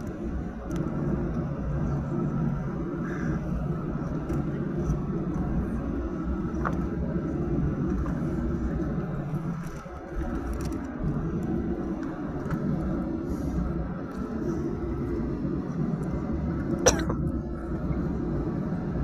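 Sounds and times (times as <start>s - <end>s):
faint clicks and ticks: 0.0s - 1.5s
vehicle interior rumble: 0.0s - 19.0s.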